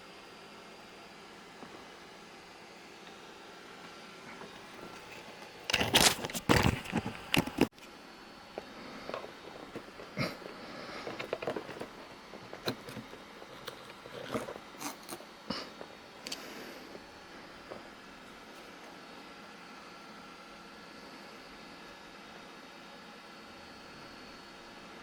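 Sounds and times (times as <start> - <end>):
knocks and rustles of handling: 4.3 - 7.9, 8.5 - 16.4.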